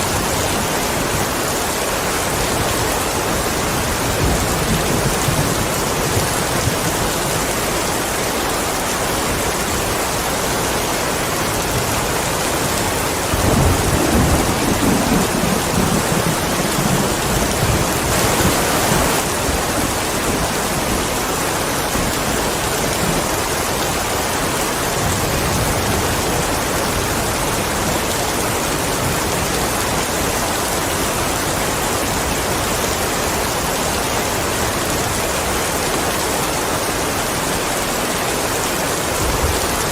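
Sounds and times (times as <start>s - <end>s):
heavy rainfall: 0.0s - 39.9s
thunder rumbling: 11.7s - 23.4s.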